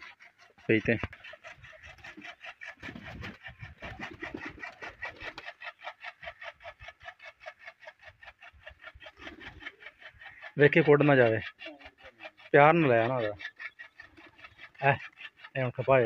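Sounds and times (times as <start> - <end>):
bird chirping rapidly: 8.5 - 16.0.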